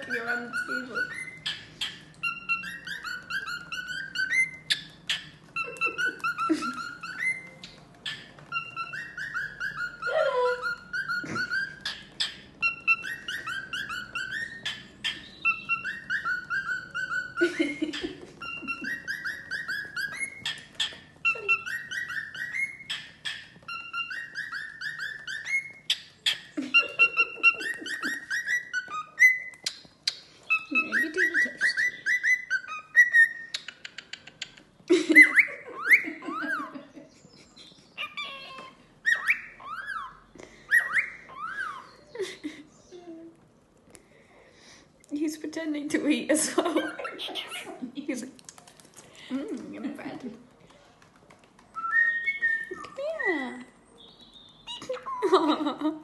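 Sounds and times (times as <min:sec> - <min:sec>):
cockatiel singing: 0:00.0 - 0:42.1, 0:46.7 - 0:47.9, 0:51.8 - 0:53.2, 0:53.8 - 0:55.6.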